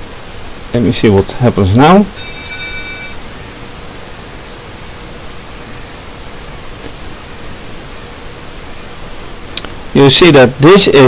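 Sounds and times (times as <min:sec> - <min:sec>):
steady hiss: 0:00.0 - 0:11.0
faint steady tone: 0:01.4 - 0:10.0.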